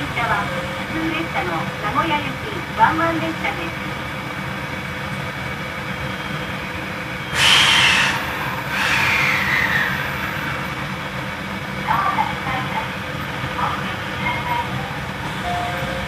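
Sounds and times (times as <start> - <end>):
train air conditioning hum: 0.0 - 16.0
loud hissing bursts: 7.3 - 10.8.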